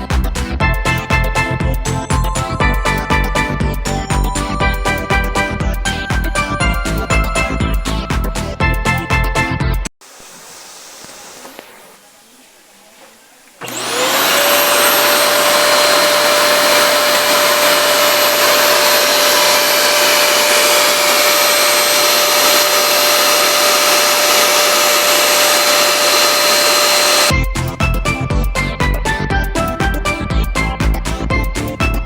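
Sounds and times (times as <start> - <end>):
vacuum cleaner motor whine: 10.1 - 27.3.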